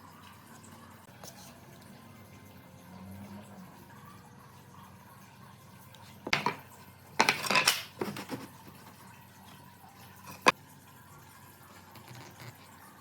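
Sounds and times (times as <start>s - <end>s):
hard objects clattering: 6.3s - 6.6s, 7.2s - 8.8s, 10.3s - 10.5s.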